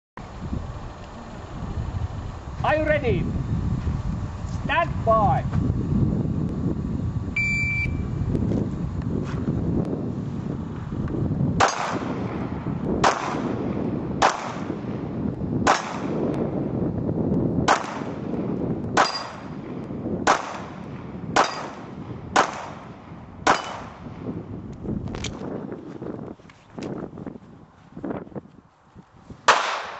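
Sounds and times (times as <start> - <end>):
low rumble: 0.2 - 29.6
pistol shots: 11.6 - 12.4, 13.0 - 13.6, 14.2 - 14.9, 15.6 - 16.2, 17.6 - 18.2, 19.0 - 19.5, 20.2 - 24.2, 29.5 - 29.9.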